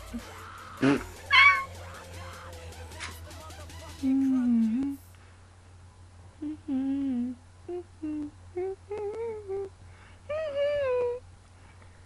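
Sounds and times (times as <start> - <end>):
girl humming: 6.4 - 11.2.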